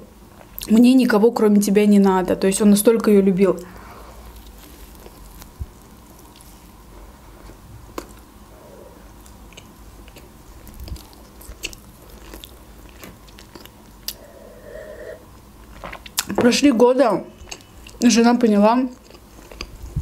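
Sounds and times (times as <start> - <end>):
chewing bread: 4.0 - 6.8, 9.2 - 14.3, 18.9 - 20.0.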